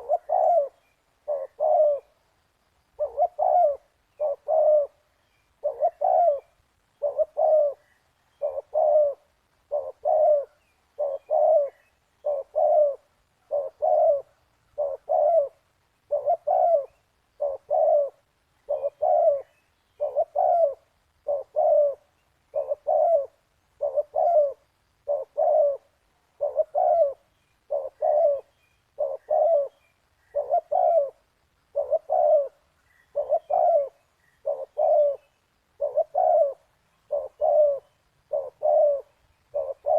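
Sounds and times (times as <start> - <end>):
dove cooing: 0.0 - 2.3, 2.9 - 39.9.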